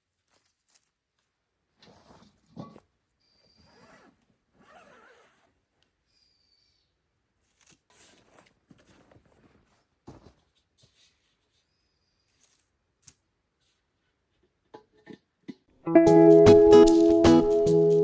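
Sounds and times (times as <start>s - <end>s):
faint rustling: 7.4s - 12.8s.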